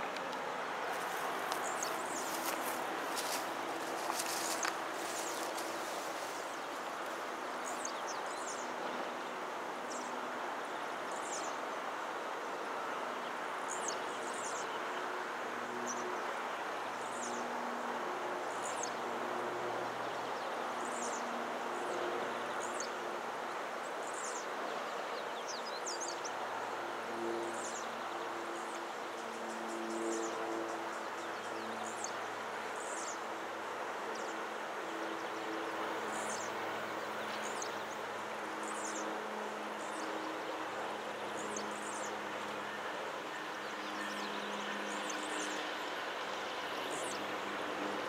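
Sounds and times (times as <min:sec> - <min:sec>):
birds chirping: 0:00.0 - 0:08.7
steady rushing background noise: 0:00.0 - 0:48.0.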